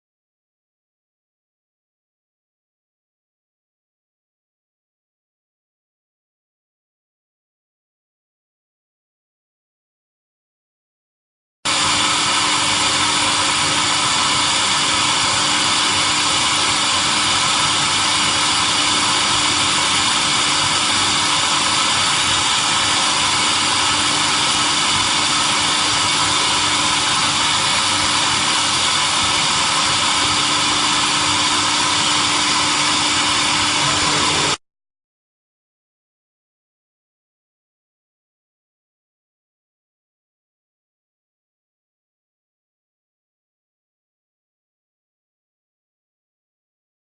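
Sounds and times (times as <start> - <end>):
welding machine hissing: 11.7 - 34.6.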